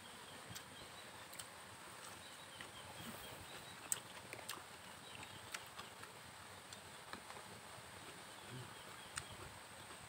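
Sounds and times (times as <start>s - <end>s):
faint outdoor background: 0.0s - 10.0s
person chewing: 3.6s - 7.4s.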